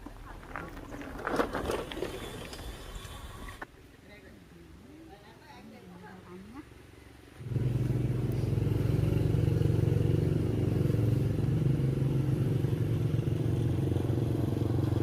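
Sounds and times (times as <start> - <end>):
motorbike engine running: 7.4 - 15.0.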